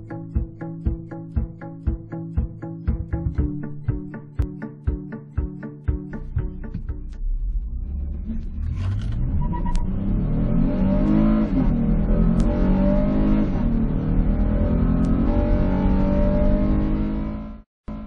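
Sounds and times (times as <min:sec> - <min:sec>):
car engine accelerating: 0:06.2 - 0:18.0.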